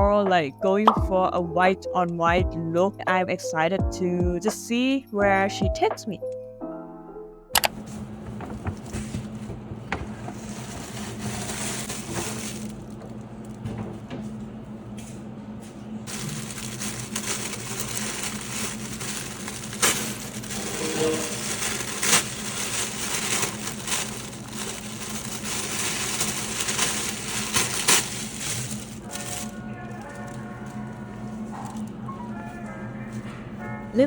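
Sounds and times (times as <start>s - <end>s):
packaging crinkling and rustling: 7.6s - 13.6s, 16.1s - 32.1s
steady low hum: 7.7s - 33.8s.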